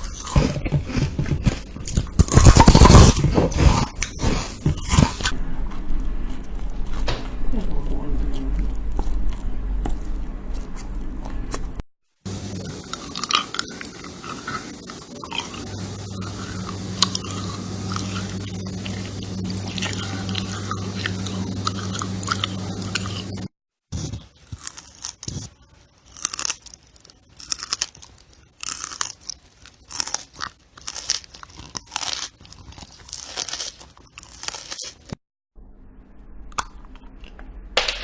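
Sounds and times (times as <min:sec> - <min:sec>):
crunchy chewing and biting: 0:00.0 - 0:11.7, 0:12.3 - 0:35.2
steady low hum: 0:00.0 - 0:23.5.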